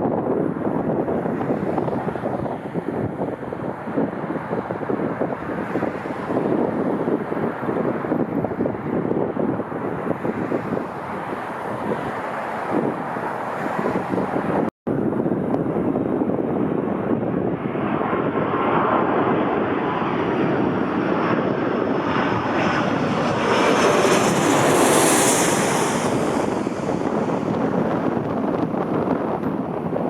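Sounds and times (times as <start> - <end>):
jet airliner engine rush: 0.0 - 30.0.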